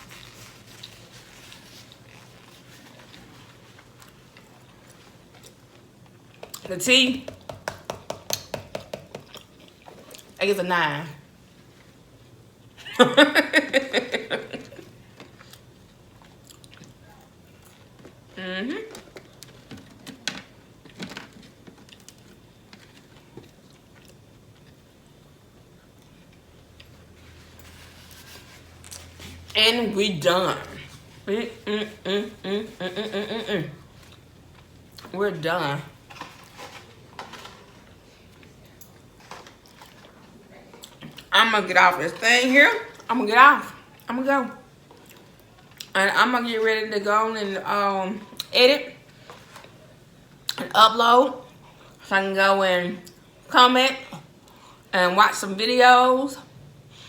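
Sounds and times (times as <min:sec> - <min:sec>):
low steady hum: 0:00.0 - 0:57.0
person chewing: 0:09.1 - 0:10.4, 0:14.6 - 0:18.4, 0:20.9 - 0:24.9, 0:44.9 - 0:45.9.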